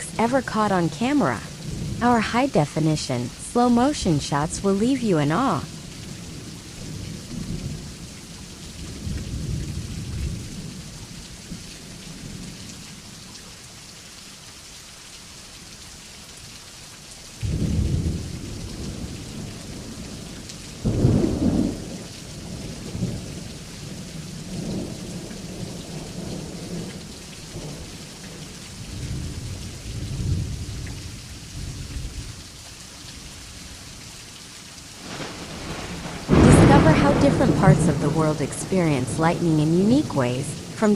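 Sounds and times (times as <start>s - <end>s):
steady rain hiss: 0.0s - 40.9s
low rolling thunder: 1.5s - 2.0s, 5.7s - 12.5s, 17.4s - 32.5s, 35.0s - 40.8s
loud thunderclaps: 17.4s - 27.0s, 35.0s - 40.9s.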